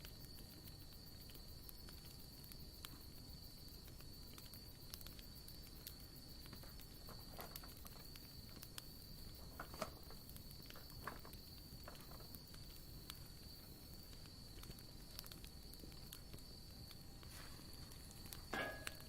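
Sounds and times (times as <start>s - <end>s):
campfire crackling and popping: 0.0s - 19.0s
insect trill: 0.0s - 19.0s.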